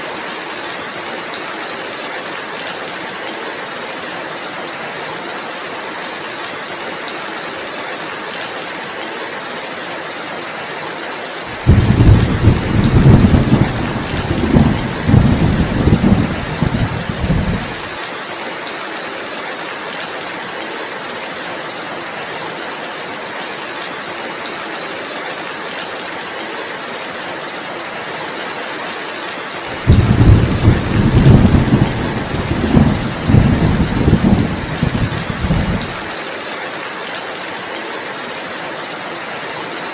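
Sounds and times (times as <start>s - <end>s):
heavy rain: 0.0s - 39.9s
thunder rumbling: 11.6s - 17.9s, 29.8s - 36.1s.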